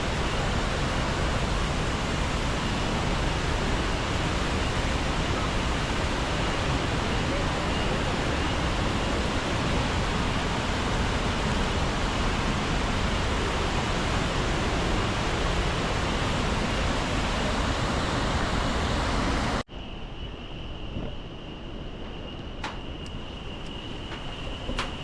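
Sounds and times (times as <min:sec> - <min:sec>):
waterfall roaring: 0:00.0 - 0:19.6.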